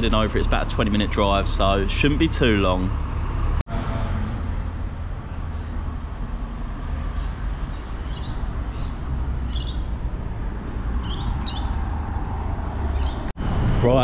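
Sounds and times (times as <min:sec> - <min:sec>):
bird chirping: 0:07.1 - 0:10.1, 0:11.0 - 0:11.9, 0:12.8 - 0:13.3.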